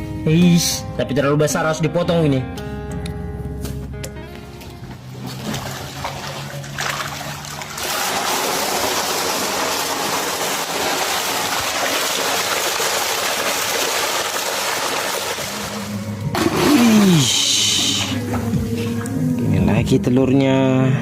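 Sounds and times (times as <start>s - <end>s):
water rushing and splashing: 5.0s - 19.2s.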